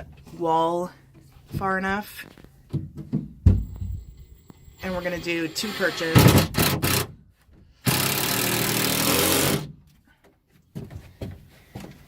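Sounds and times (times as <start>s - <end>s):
power drill driving a screw: 4.1s - 7.1s, 7.8s - 9.7s.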